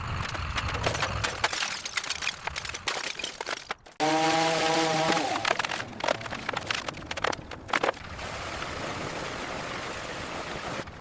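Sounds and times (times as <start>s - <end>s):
power tool motor whining: 4.0s - 5.6s
rapid knocks and clatter: 5.4s - 8.0s.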